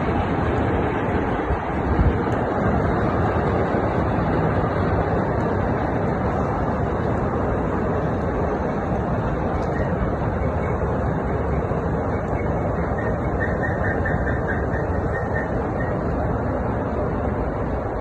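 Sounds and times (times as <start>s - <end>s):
industrial machinery rumble: 0.0s - 18.0s.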